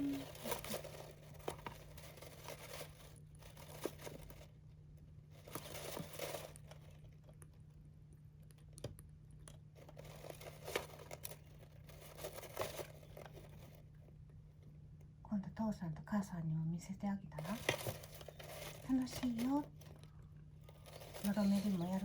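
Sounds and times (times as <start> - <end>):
dry husks rustling and crunching: 0.0 - 4.6, 5.3 - 7.6, 9.8 - 14.2, 17.4 - 22.0.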